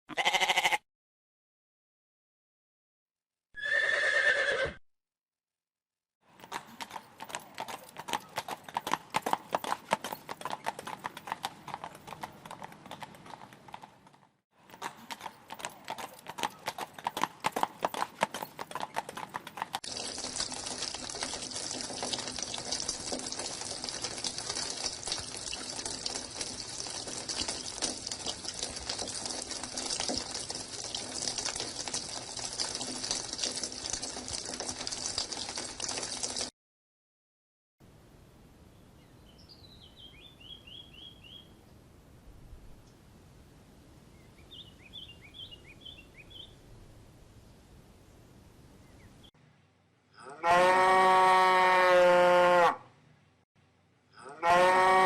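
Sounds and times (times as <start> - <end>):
horse hooves clip-clopping: 6.4 - 36.5
steady outdoor hiss: 37.8 - 50.1.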